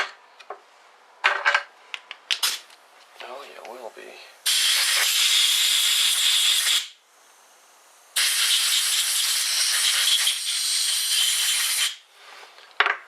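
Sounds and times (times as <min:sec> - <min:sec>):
compressed air blowgun hissing: 0:04.3 - 0:12.0.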